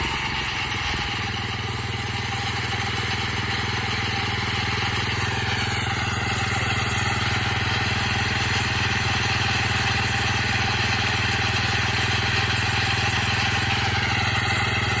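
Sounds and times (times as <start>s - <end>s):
high saw blade whine: 0.0s - 2.4s
petrol engine running under load: 0.0s - 15.0s.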